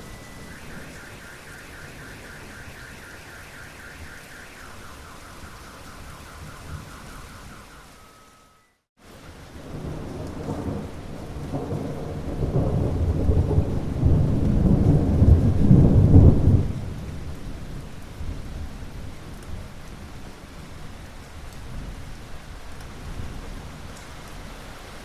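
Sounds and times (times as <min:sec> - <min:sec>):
thunder rolling: 0:00.0 - 0:08.2, 0:09.6 - 0:17.0
rain falling: 0:00.0 - 0:25.0.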